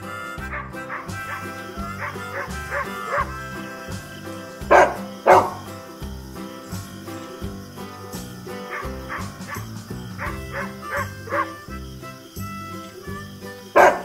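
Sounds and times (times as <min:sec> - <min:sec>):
dog yelping: 0:00.0 - 0:05.7, 0:08.6 - 0:11.9, 0:13.8 - 0:14.0
background music: 0:00.0 - 0:14.0
dog barking: 0:00.4 - 0:03.3, 0:04.7 - 0:05.6, 0:08.7 - 0:11.6, 0:13.8 - 0:14.0.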